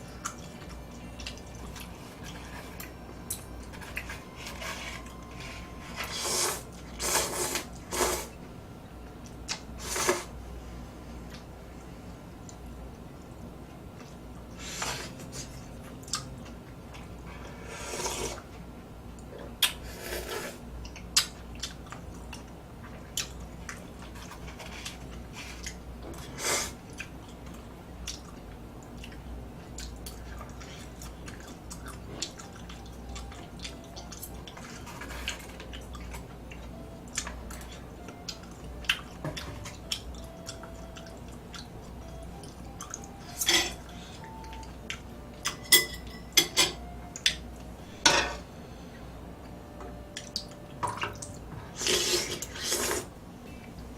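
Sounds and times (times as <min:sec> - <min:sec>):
person chewing food: 0:19.6 - 0:43.2.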